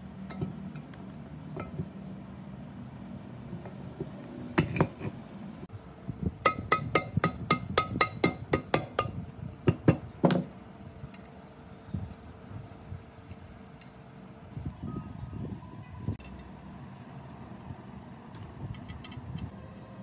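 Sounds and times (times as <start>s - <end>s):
metal-on-metal tapping: 6.4s - 10.5s.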